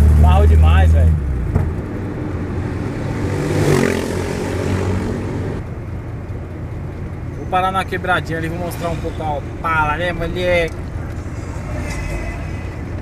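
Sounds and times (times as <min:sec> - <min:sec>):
road noise: 0:00.0 - 0:13.0
motor vehicle passing: 0:01.3 - 0:05.6.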